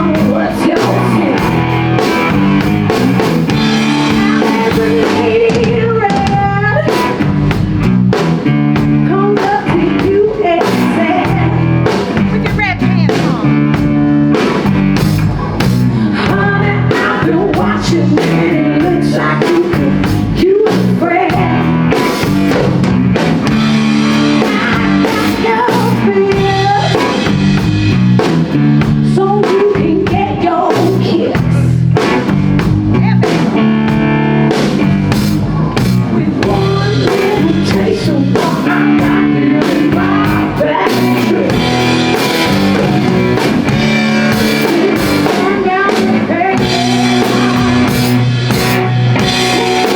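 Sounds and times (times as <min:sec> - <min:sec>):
blues-rock band playing: 0:00.0 - 0:49.9
electric guitar: 0:00.0 - 0:49.9.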